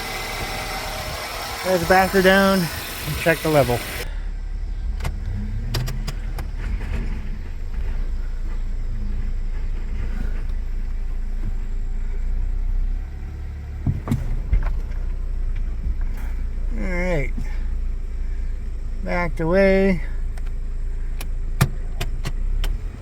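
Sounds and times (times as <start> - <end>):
car engine running: 0.0 - 23.0
sharp clicks: 5.0 - 6.5.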